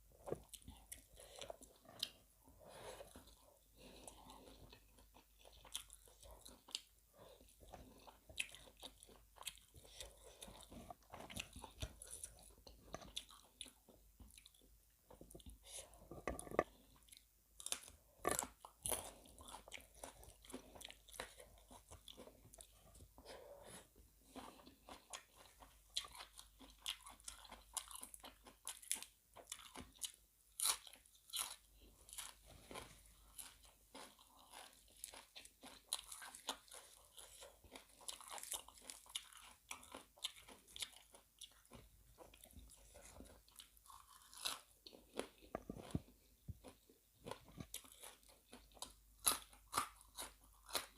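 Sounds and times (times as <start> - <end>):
person crunching food: 16.1 - 22.7, 24.3 - 50.9.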